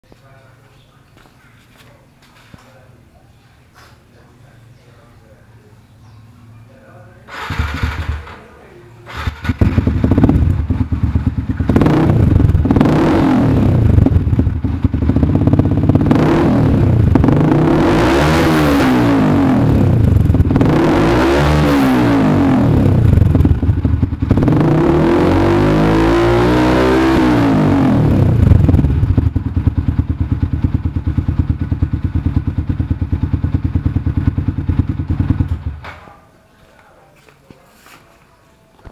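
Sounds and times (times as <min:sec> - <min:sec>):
motorcycle engine revving: 0:07.3 - 0:36.0.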